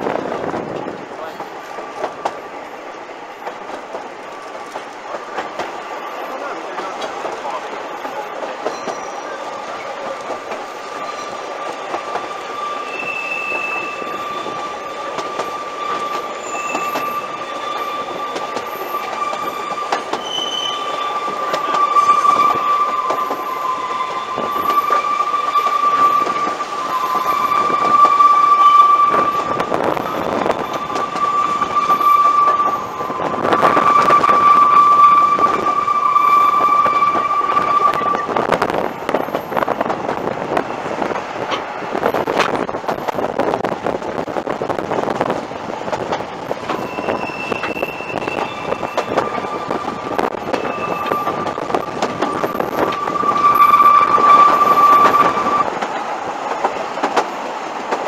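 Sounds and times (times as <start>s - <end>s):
train wheels squealing: 6.0s - 39.8s, 46.4s - 55.8s
short high squeaks: 15.4s - 38.3s, 46.6s - 55.7s.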